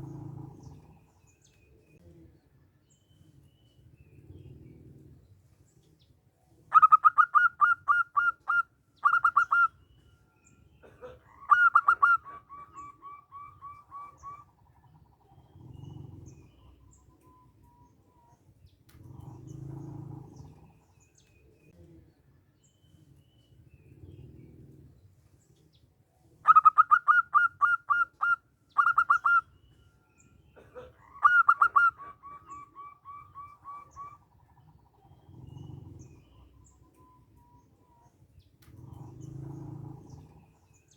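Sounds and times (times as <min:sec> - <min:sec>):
dove cooing song: 0:00.0 - 0:02.3, 0:06.6 - 0:10.2, 0:10.8 - 0:40.9
faint low rumbling: 0:38.4 - 0:40.8.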